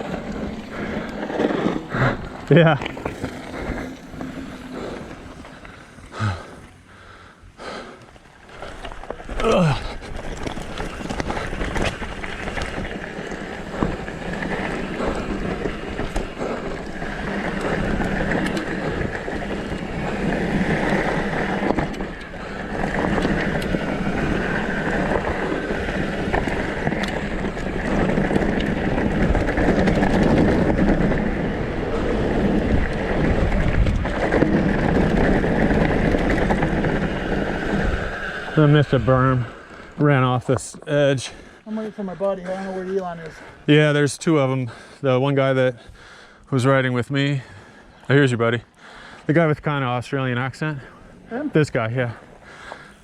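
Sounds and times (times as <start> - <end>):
bike tyres rolling on dirt trail: 0.0 - 53.0
wind buffeting microphone: 8.7 - 40.6.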